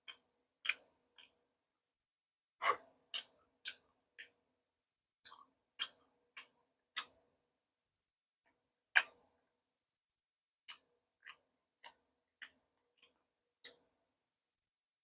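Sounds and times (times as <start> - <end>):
crunchy chewing of food: 0.0 - 1.4, 2.6 - 4.5, 5.2 - 7.2, 10.6 - 13.9.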